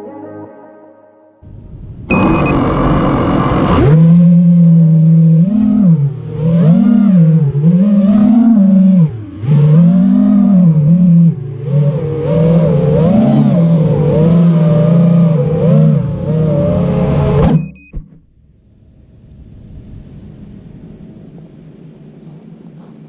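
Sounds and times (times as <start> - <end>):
drone motors whining: 1.5 - 17.6.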